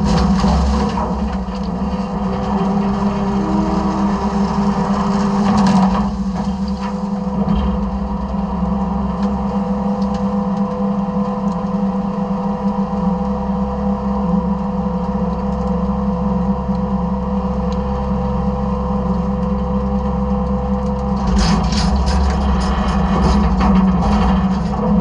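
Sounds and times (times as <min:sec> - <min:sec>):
trash clattering and crunching: 0:00.0 - 0:08.1, 0:21.2 - 0:25.0
garbage truck engine and hydraulics hum: 0:00.0 - 0:25.0.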